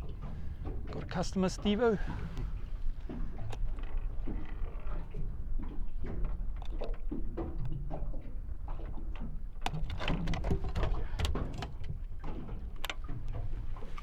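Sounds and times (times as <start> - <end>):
knocks and clicks of gear: 9.1 - 14.0.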